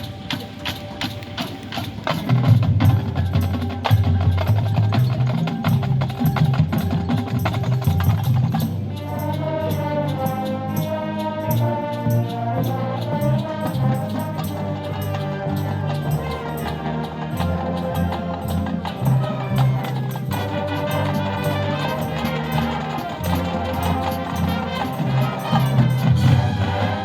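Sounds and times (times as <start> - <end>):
clicking percussion: 0.0 - 27.0
drums: 0.0 - 27.0
horns and winds chord: 7.1 - 27.0
low brass: 7.2 - 27.0.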